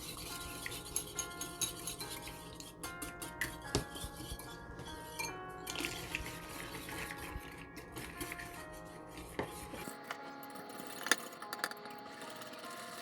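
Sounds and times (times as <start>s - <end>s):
soft background music: 0.0s - 13.0s
spoon scraping and tapping a bowl: 0.0s - 13.0s.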